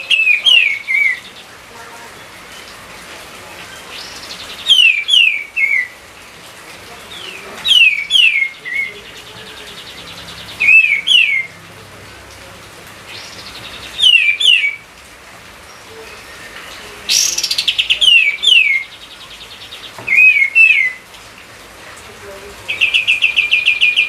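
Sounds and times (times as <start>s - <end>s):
songbird whistling phrase: 4.0s - 6.0s, 7.2s - 8.9s, 14.0s - 14.8s, 20.1s - 21.0s.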